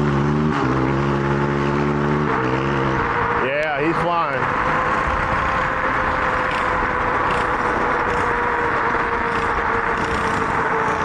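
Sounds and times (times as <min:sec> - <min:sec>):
wind and road rush: 0:00.0 - 0:11.0
electric motor whine: 0:04.5 - 0:11.0.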